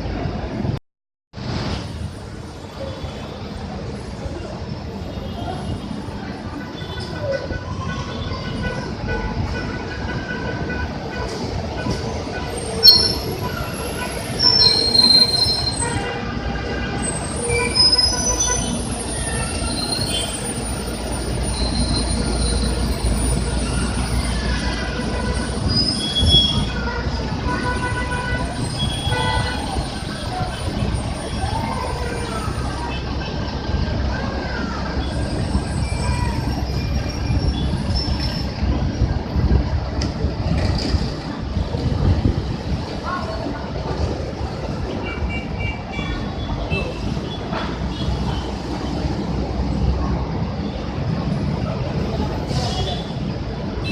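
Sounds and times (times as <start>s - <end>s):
bus engine and traffic rumble: 0.0s - 0.8s, 1.4s - 53.9s
high-pitched brake squeals: 12.5s - 16.1s, 17.0s - 26.8s, 27.8s - 33.1s, 34.6s - 38.6s, 52.4s - 53.2s.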